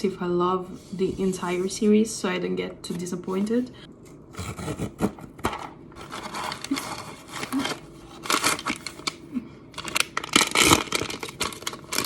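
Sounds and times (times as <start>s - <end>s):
packaging crinkling and tearing: 6.0s - 12.0s
packaging ripping: 6.0s - 12.0s.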